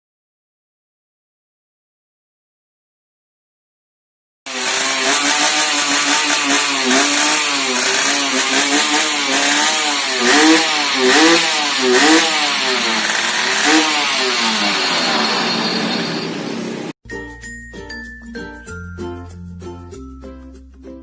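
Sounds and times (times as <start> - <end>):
two-stroke engine throttle blips: 4.5 - 16.9.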